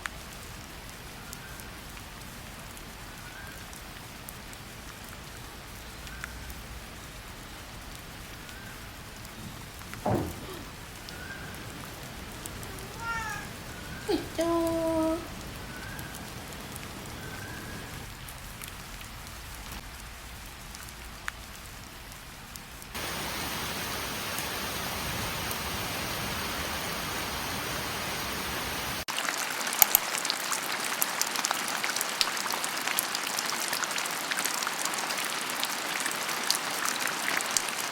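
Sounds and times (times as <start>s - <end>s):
steady rain hissing: 0.0s - 37.9s
raindrops tapping on a surface: 7.8s - 13.5s, 15.8s - 33.4s.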